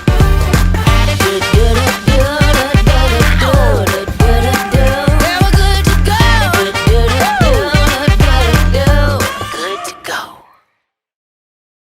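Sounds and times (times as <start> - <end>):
heavy bass beat: 0.0 - 9.3
pop song with vocals: 0.0 - 10.6.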